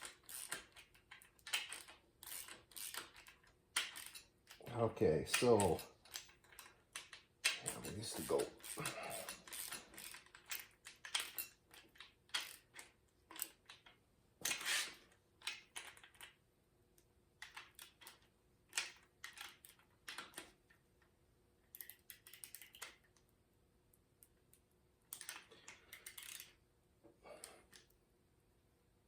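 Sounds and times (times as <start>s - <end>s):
metal parts and tools clicking: 0.0s - 16.4s, 17.4s - 20.8s, 21.7s - 23.2s, 25.1s - 26.6s.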